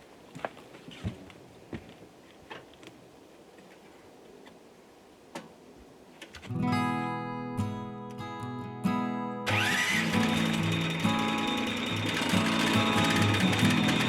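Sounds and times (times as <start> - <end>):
strummed acoustic guitar music: 6.4 - 14.0.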